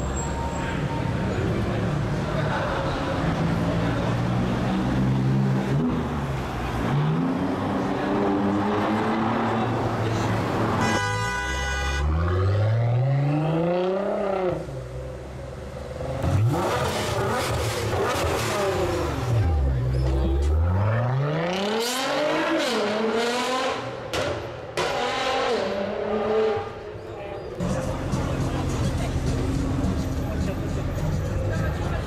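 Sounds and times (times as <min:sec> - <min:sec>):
car engines idling and revving: 0:00.0 - 0:32.0
car horn: 0:10.7 - 0:12.6
sports car engine revving: 0:16.0 - 0:19.7.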